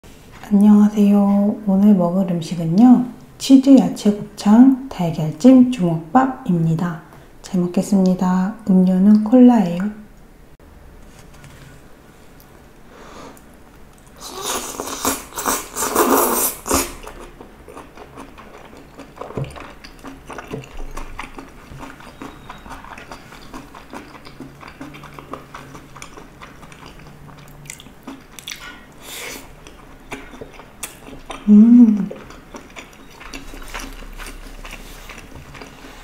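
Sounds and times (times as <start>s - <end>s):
chewing with mouth clicks: 13.4s - 36.0s.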